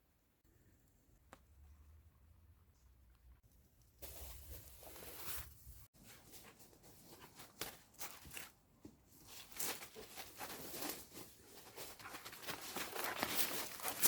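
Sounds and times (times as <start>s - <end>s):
soft footsteps: 4.0s - 14.0s.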